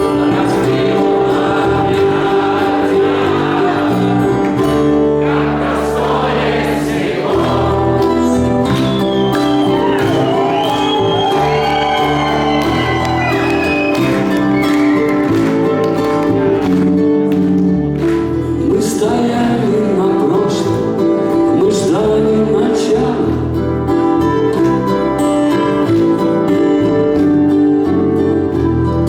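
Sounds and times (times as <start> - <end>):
live rock music with singing: 0.0 - 29.0.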